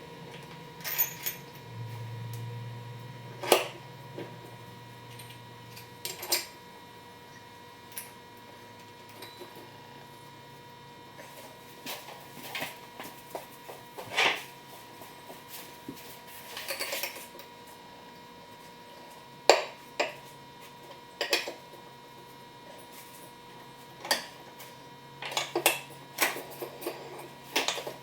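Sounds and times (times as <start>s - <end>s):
faint steady hum: 0.0s - 28.0s
metal tools clinking and knocking: 0.3s - 1.6s.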